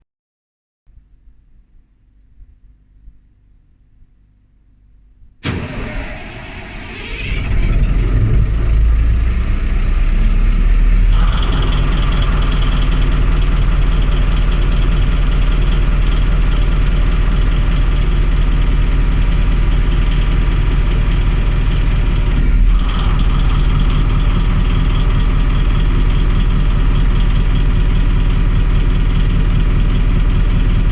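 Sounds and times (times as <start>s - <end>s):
engine starter cranking: 5.4s - 10.0s, 11.0s - 30.8s
diesel engine idling: 5.4s - 30.9s.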